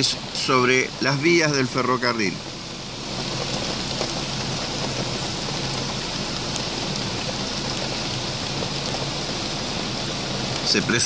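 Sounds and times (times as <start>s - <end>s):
heavy rain splashing on water: 0.0s - 11.0s.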